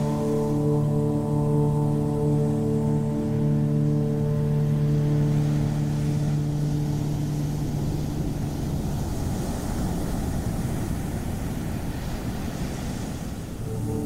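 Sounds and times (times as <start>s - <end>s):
low musical drone: 0.0s - 9.6s, 13.6s - 14.0s
ocean surf washing: 0.0s - 14.0s.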